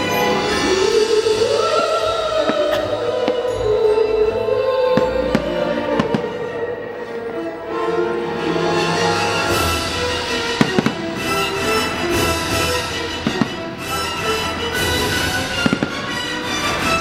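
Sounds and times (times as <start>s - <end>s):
orchestral music: 0.0s - 17.0s
fireworks bangs and crackles: 5.0s - 6.5s, 9.6s - 17.0s.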